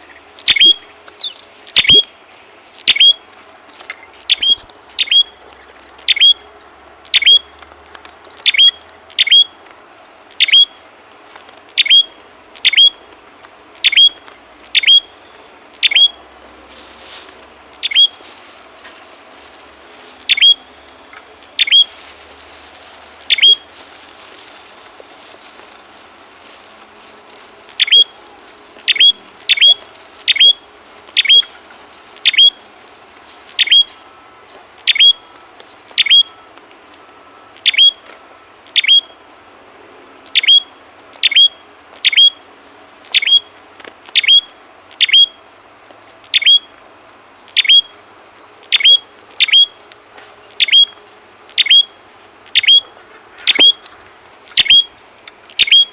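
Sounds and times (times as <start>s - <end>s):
songbird chirping: 4.0s - 6.4s, 13.8s - 16.2s, 17.7s - 19.2s, 20.1s - 25.9s, 26.5s - 32.6s, 33.2s - 34.1s, 34.8s - 39.7s, 50.5s - 54.9s.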